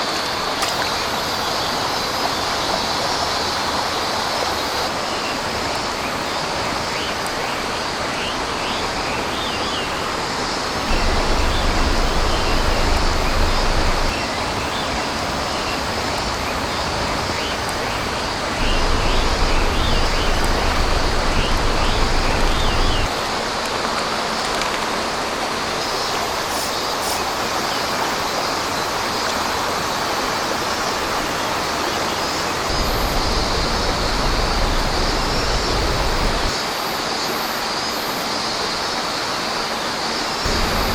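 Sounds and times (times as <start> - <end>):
stream water flowing: 0.0 - 40.9
low rumble: 10.9 - 14.1, 18.6 - 23.1, 32.7 - 36.5.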